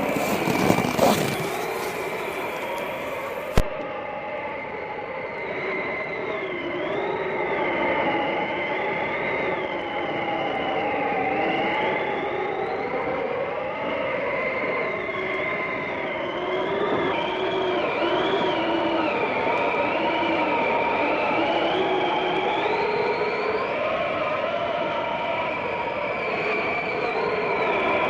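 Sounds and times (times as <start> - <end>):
howling blizzard wind: 0.0 - 3.6.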